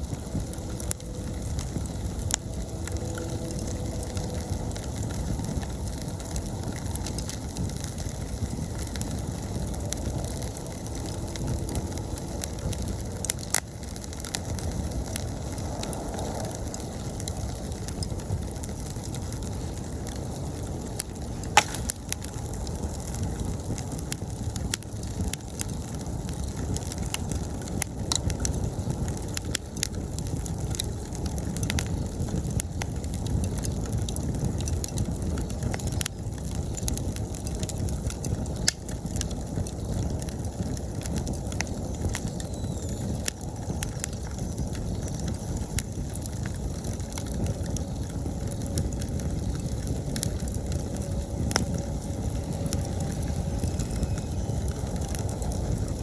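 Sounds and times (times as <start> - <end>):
campfire crackling and popping: 0.0 - 56.0
insects trilling: 47.4 - 56.0.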